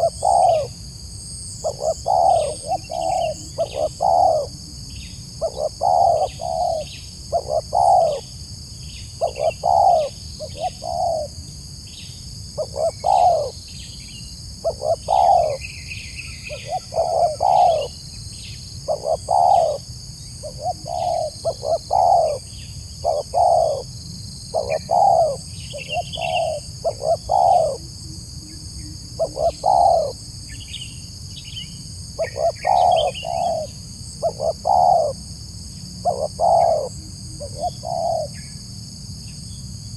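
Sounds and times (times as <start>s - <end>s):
dove cooing: 0.0s - 0.8s, 1.6s - 4.8s, 5.4s - 8.3s, 9.2s - 11.4s, 12.6s - 13.6s, 14.6s - 15.7s, 16.4s - 18.0s, 18.8s - 30.2s, 32.2s - 35.2s, 36.0s - 38.4s.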